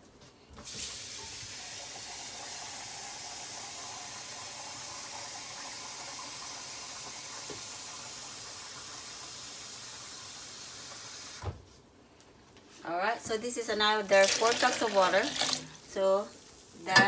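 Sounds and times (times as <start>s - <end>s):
water running from tap into container: 0.7s - 11.4s, 14.1s - 17.0s.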